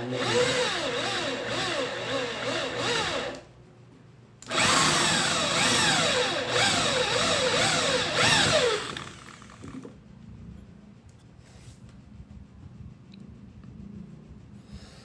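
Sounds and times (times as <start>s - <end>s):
electric mini drill running: 0.0s - 3.4s, 4.4s - 9.9s.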